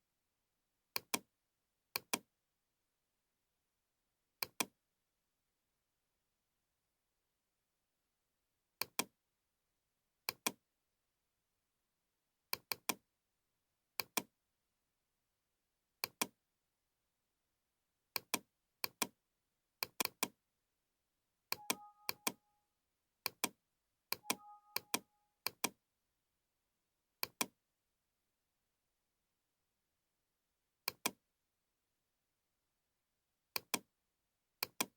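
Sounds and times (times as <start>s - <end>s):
computer mouse clicks: 2.0s - 2.3s, 4.4s - 4.7s, 8.8s - 9.1s, 10.3s - 10.6s, 12.5s - 13.0s, 14.0s - 14.3s, 16.0s - 16.4s, 18.2s - 19.2s, 19.8s - 20.3s, 21.5s - 22.4s, 23.3s - 25.8s, 27.2s - 27.5s, 30.9s - 31.2s, 33.6s - 33.9s, 34.6s - 34.9s
two-note tone: 21.6s - 22.6s, 24.2s - 25.4s.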